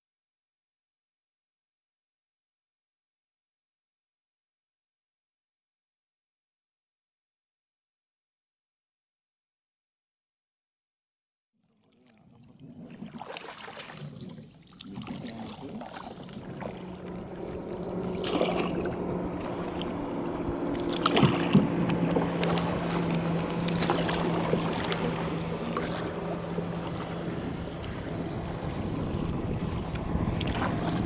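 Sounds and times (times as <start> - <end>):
outboard engine humming: 11.7 - 31.0
water rushing past hull: 11.8 - 31.0
wind on microphone: 14.0 - 31.0.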